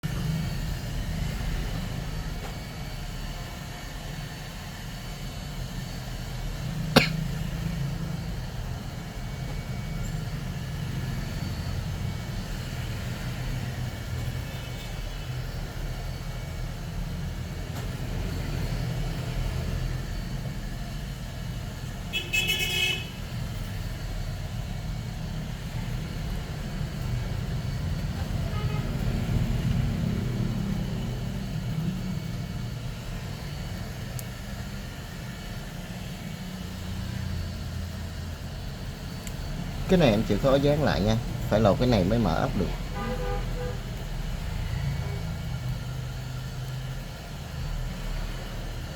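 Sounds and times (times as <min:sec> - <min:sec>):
street traffic rumble: 0:00.0 - 0:48.9
vehicle horn toot: 0:22.1 - 0:23.2, 0:28.4 - 0:29.0, 0:42.9 - 0:43.8.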